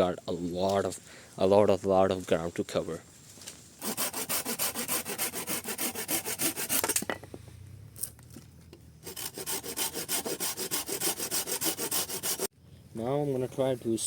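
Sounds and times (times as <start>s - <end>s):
hand saw cutting wood: 3.8s - 7.0s, 9.0s - 12.5s.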